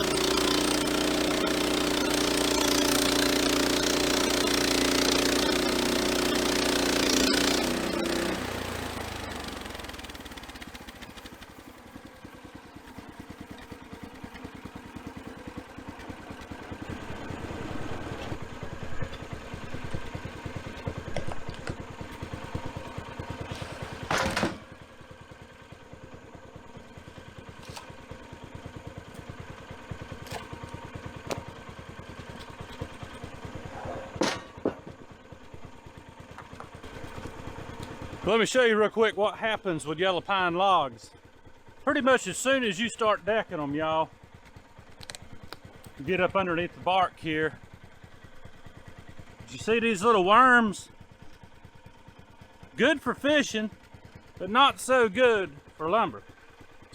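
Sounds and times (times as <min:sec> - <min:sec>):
band saw blade cutting: 0:00.0 - 0:10.2
engine idling: 0:00.0 - 0:56.9.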